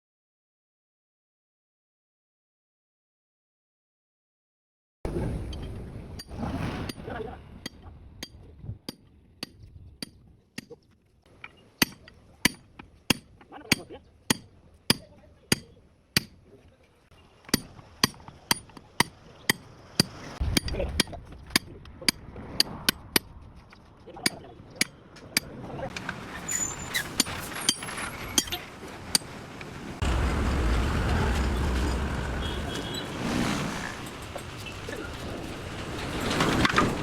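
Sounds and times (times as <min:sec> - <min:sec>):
rumbling: 0:25.9 - 0:37.0.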